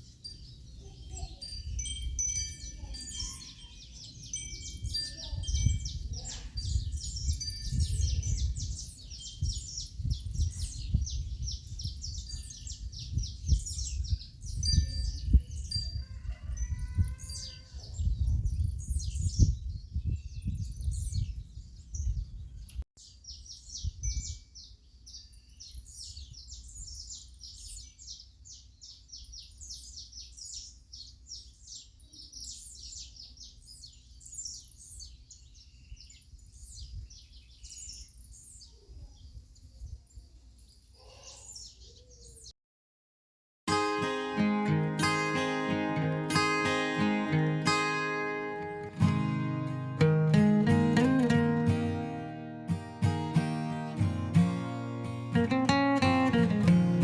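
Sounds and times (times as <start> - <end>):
small birds chirping: 0.0 - 42.6.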